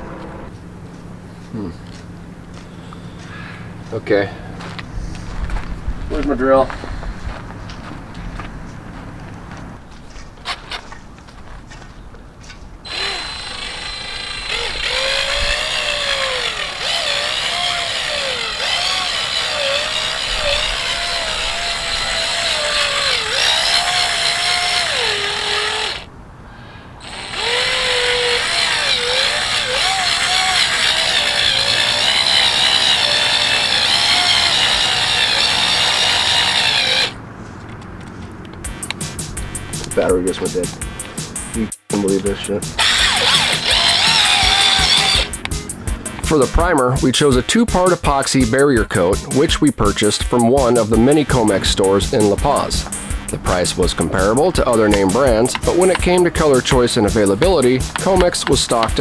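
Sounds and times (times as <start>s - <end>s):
cordless drill mixing thick epoxy: 12.9s - 26.1s, 27.0s - 37.2s, 42.7s - 45.5s, 51.4s - 59.0s.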